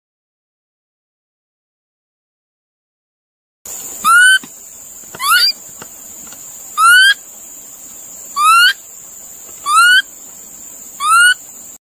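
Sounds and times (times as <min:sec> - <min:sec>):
steady high hiss: 0:03.7 - 0:11.8
bird whistled call rising: 0:03.9 - 0:04.5, 0:05.2 - 0:05.6, 0:06.7 - 0:07.2, 0:08.3 - 0:08.8, 0:09.6 - 0:10.1, 0:11.0 - 0:11.5.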